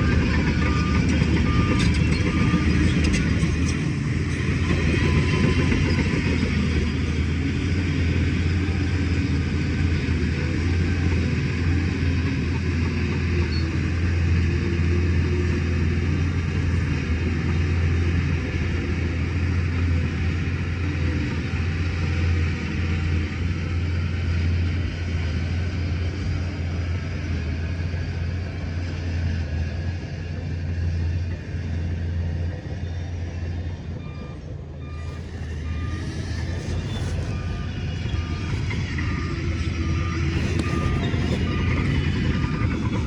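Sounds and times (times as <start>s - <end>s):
reversing alarm beeping: 0.0s - 9.1s, 32.6s - 43.0s
diesel engine low rumble: 0.0s - 43.0s.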